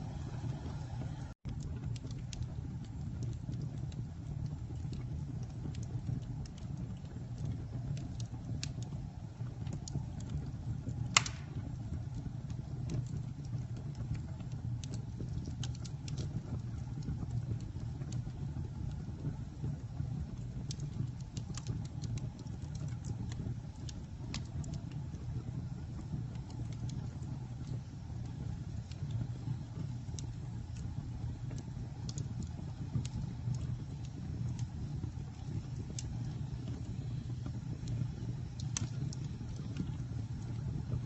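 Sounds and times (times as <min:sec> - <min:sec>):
campfire crackling: 0:00.0 - 0:41.0
sharp loud pop: 0:11.2 - 0:11.6.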